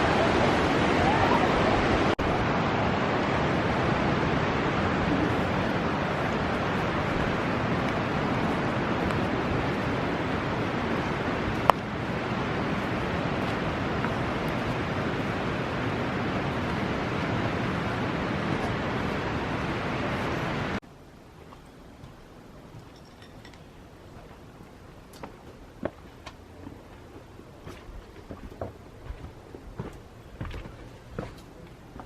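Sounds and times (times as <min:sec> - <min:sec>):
river rapids rushing: 0:00.0 - 0:20.8.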